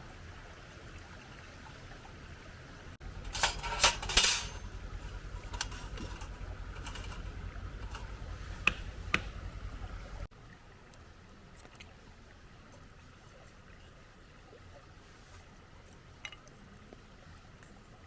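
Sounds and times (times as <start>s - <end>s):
low rumble: 3.0s - 10.3s
cookware clattering and clinking: 3.3s - 4.7s, 5.4s - 8.2s.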